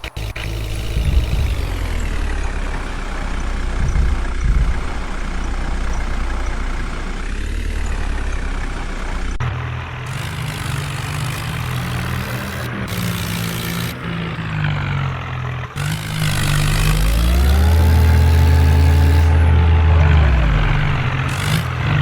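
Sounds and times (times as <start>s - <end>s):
steady engine note: 0.0s - 22.0s
tractor diesel engine under load: 0.0s - 22.0s.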